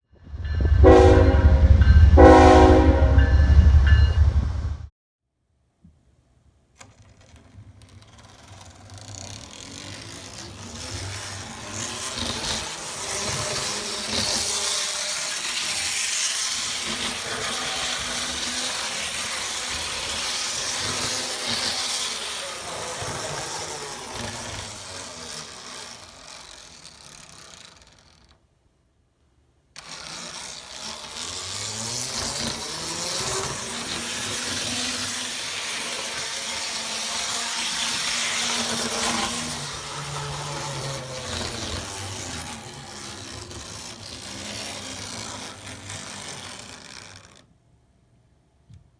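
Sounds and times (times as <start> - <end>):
model train wheels rattling: 6.5 - 28.6, 29.7 - 47.6
small electric motor whirring: 6.8 - 28.4, 29.8 - 47.6.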